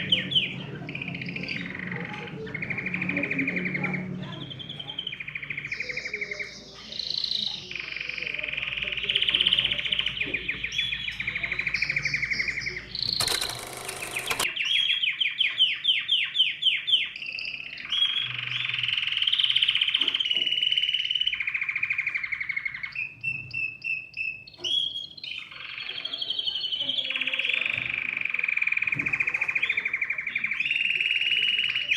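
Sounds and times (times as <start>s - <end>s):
bird chirps: 0.0s - 31.9s
canary singing trills: 0.0s - 31.9s.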